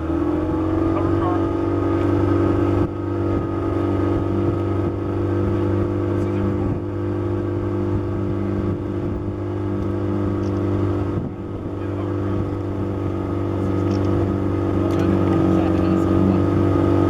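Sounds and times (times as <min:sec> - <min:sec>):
boat motor droning: 0:00.0 - 0:17.0.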